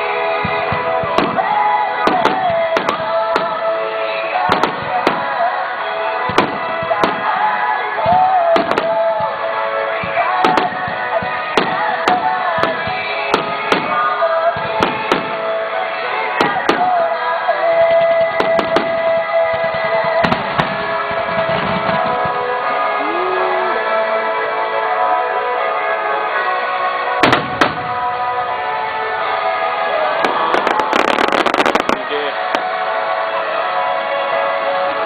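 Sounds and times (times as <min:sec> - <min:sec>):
fireworks bangs: 0:00.0 - 0:03.8, 0:04.4 - 0:15.7, 0:16.3 - 0:17.1, 0:17.9 - 0:22.6, 0:27.2 - 0:33.1
music over loudspeakers: 0:00.0 - 0:35.0.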